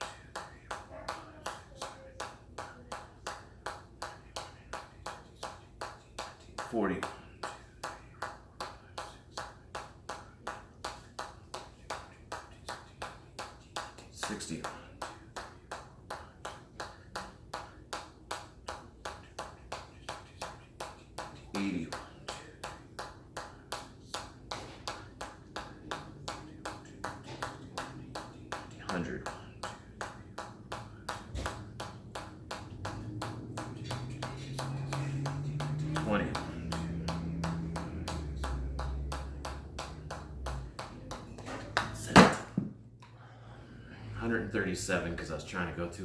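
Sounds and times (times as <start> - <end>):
rapid hammer strikes: 9.0 - 41.1.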